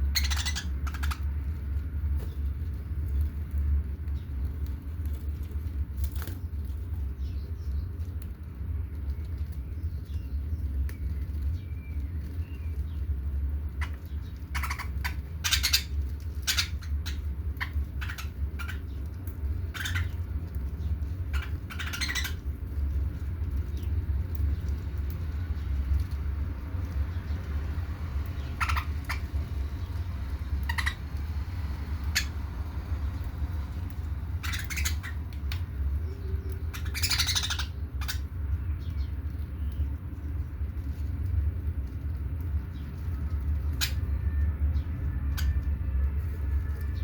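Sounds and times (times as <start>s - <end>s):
budgerigars scratchy chirps: 0.0s - 1.4s, 13.7s - 22.6s, 28.3s - 31.2s, 32.0s - 32.4s, 34.2s - 39.1s, 43.7s - 44.2s.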